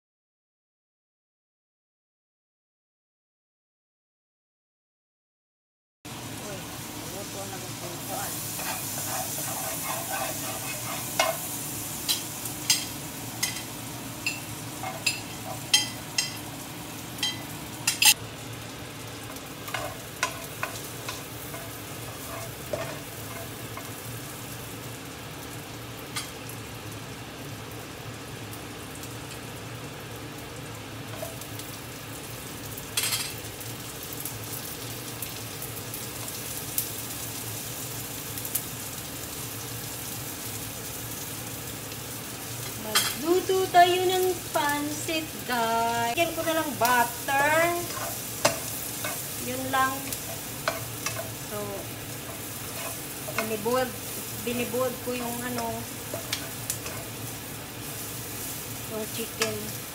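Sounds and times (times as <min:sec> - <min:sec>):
garlic and onion sizzling in wok: 0:06.1 - 0:59.9
spatula knocking and scraping pan: 0:08.4 - 0:16.5, 0:19.7 - 0:24.0, 0:47.7 - 0:51.4, 0:52.2 - 0:53.7, 0:55.5 - 0:57.2.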